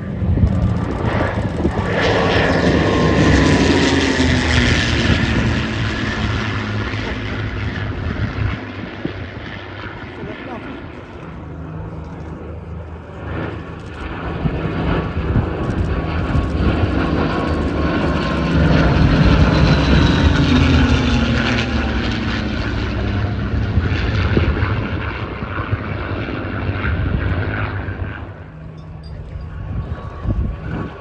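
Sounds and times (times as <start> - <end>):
propeller aircraft passing: 0.0 - 31.0.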